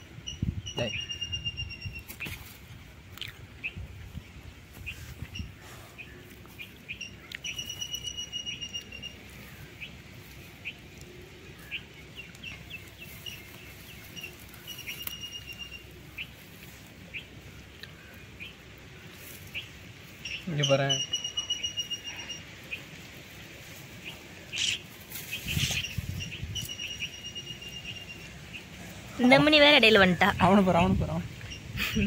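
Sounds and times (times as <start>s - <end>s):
bird trills: 0.2s - 2.3s, 5.3s - 9.9s, 11.6s - 16.4s, 19.6s - 22.9s, 24.0s - 28.7s
grass rustling: 1.2s - 32.0s.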